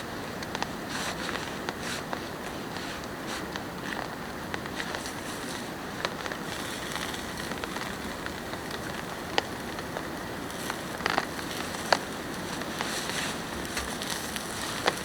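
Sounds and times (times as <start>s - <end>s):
rain falling: 4.8s - 15.0s
heavy drops ticking: 5.9s - 15.0s.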